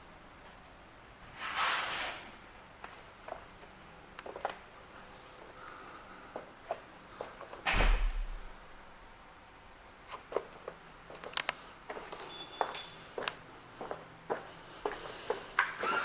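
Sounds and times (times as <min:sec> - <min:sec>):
light clicks and taps: 0:10.4 - 0:12.3.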